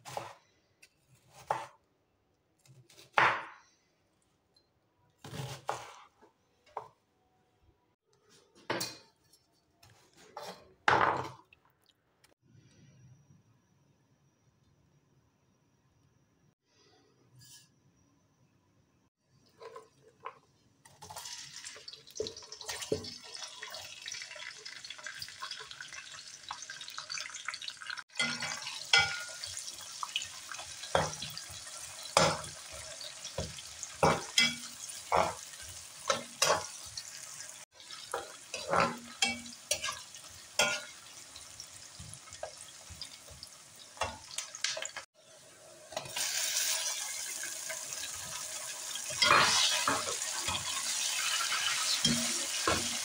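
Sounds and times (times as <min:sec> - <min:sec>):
spoon scraping a pot: 0:08.6 - 0:10.7, 0:38.1 - 0:40.0, 0:49.1 - 0:53.0
chicken frying in oil: 0:19.5 - 0:45.2, 0:45.9 - 0:53.0
onions sizzling in hot oil: 0:21.0 - 0:53.0.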